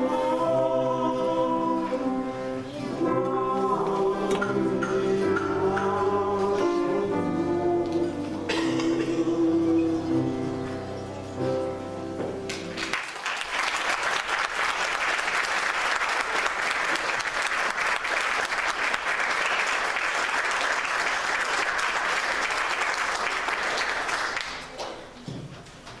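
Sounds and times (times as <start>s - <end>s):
crowd applause: 12.5s - 24.8s.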